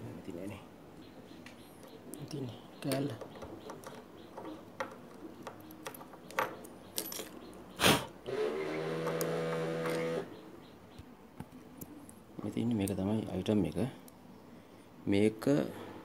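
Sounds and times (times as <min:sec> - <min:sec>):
metal parts clinking: 0:01.8 - 0:07.6.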